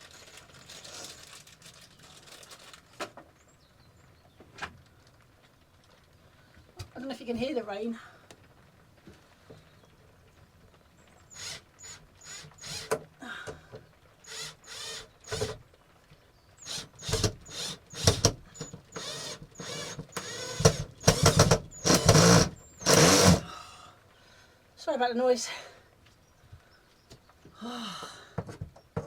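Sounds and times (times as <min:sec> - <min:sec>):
electric screwdriver driving screws: 0:11.3 - 0:13.0, 0:14.2 - 0:15.6, 0:16.6 - 0:23.5.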